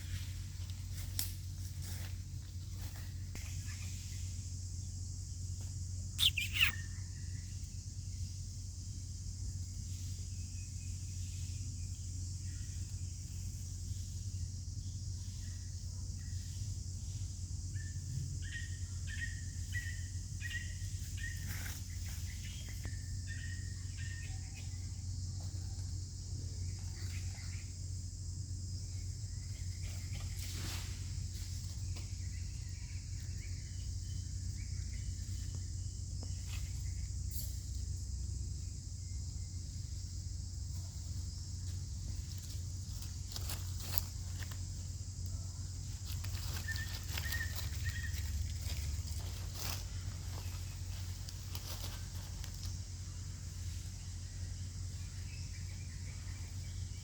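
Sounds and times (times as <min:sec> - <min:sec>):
high-pitched insect drone: 0:02.8 - 0:57.0
soft chirps: 0:06.0 - 0:07.8, 0:42.0 - 0:57.0.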